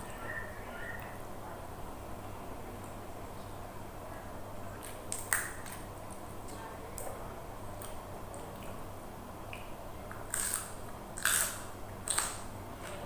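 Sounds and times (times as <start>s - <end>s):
crunchy wet bites: 4.8s - 5.9s, 9.5s - 13.0s
person chewing: 9.5s - 12.5s.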